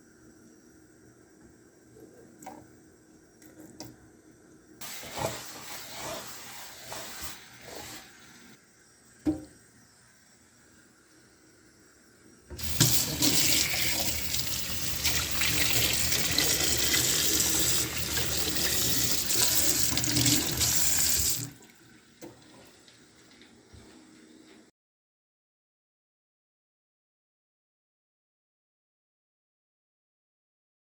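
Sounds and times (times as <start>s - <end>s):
tap water running into sink: 12.5s - 23.5s.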